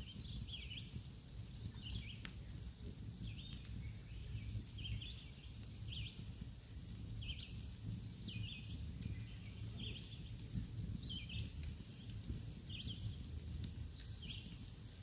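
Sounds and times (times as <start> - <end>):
campfire crackling and popping: 0.0 - 15.0
small bird chirping: 8.2 - 12.1.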